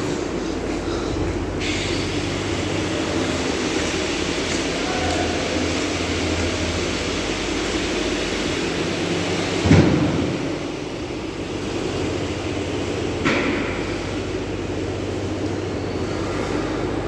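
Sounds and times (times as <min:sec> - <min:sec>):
industrial machine hum: 0:00.0 - 0:17.0.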